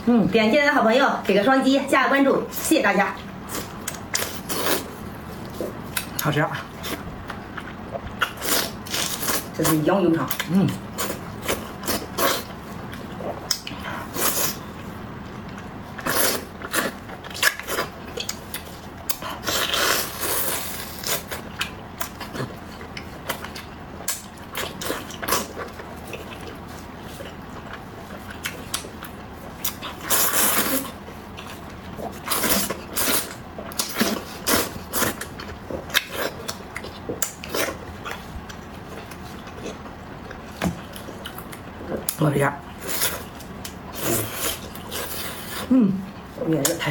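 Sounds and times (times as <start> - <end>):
chewing and mouth smacking: 10.2 - 42.2
slurping or crunching: 16.0 - 18.4, 19.1 - 22.6, 29.6 - 38.4, 42.8 - 45.7.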